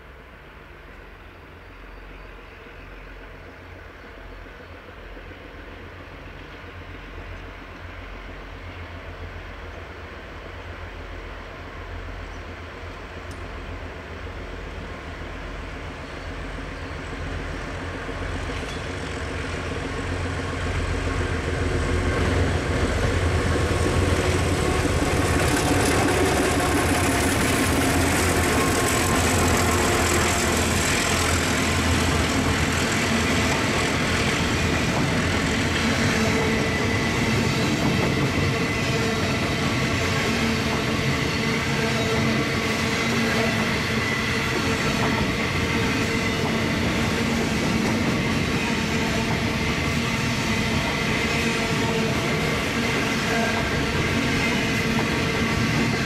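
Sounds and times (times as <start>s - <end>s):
diesel locomotives working hard: 0.0s - 56.0s
steel wheels clicking on rails: 18.1s - 38.6s.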